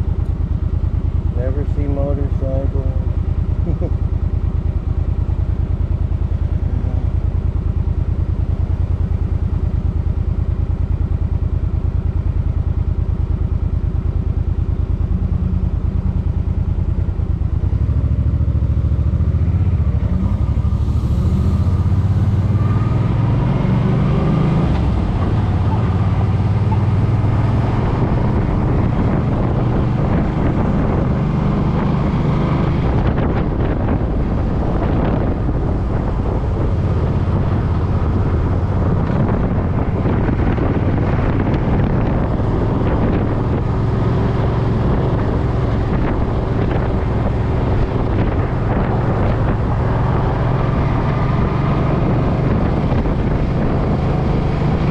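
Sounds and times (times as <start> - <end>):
motorcycle engine accelerating: 0.0 - 54.9
wind noise: 15.0 - 54.9.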